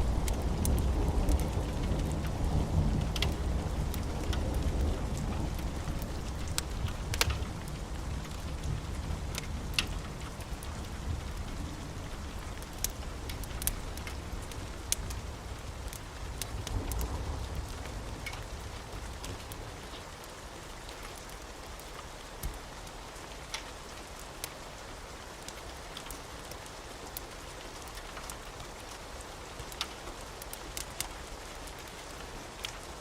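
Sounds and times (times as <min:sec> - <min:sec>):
low thunder rumble: 0:00.0 - 0:19.6
rain hiss: 0:00.0 - 0:33.0
sharp ticks and clicks: 0:05.6 - 0:10.3.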